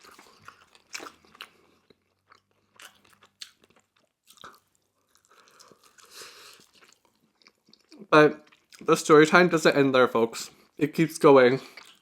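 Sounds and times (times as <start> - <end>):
crunchy chewing of food: 0.0 - 8.8, 11.6 - 12.0.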